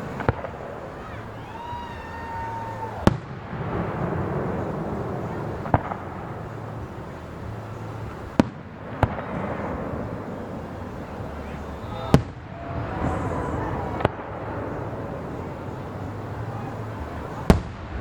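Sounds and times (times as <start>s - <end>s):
fireworks bangs: 0.0s - 18.0s
fireworks rumble and crackle: 0.0s - 18.0s
fireworks whistling: 0.0s - 18.0s.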